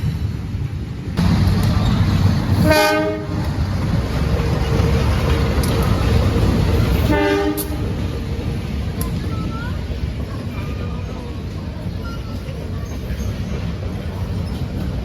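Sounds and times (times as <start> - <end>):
diesel locomotive rumbling: 0.0 - 15.0
train horn blasts: 2.6 - 3.4, 7.0 - 8.0.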